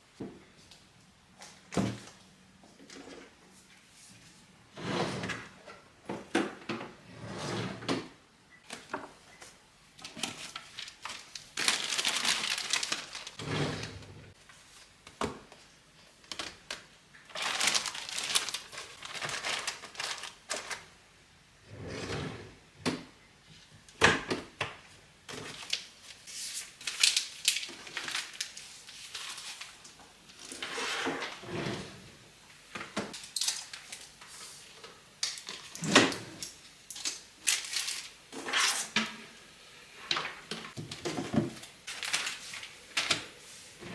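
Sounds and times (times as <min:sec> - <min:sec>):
rustling and scraping: 0:10.0 - 0:14.9.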